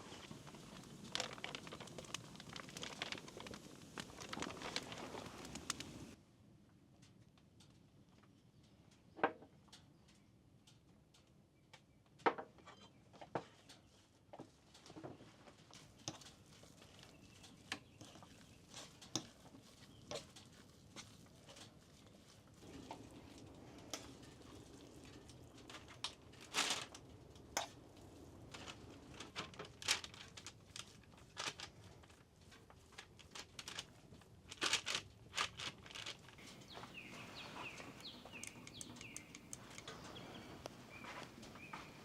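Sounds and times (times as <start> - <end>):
faint steady hiss: 0.0 - 6.4, 13.4 - 42.0.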